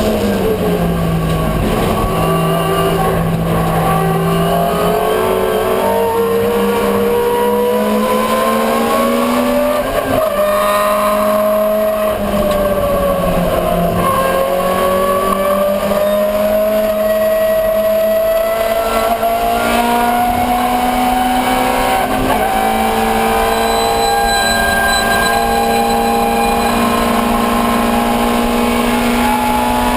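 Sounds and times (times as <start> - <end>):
racing car engine revving: 0.0 - 29.9
gear change: 11.4 - 29.9.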